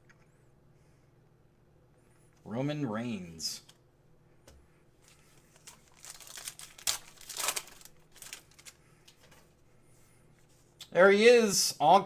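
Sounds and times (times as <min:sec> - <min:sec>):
packaging crinkling: 0:05.0 - 0:09.4.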